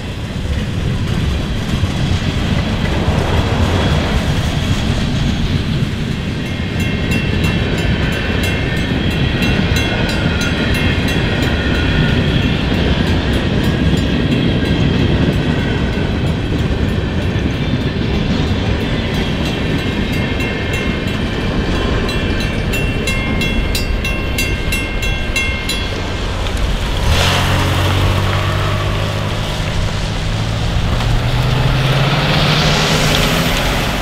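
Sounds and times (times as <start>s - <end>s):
steel wheels rumbling on rail: 0.0s - 34.0s
wheel flanges squealing: 0.0s - 34.0s
car driving by: 26.0s - 34.0s.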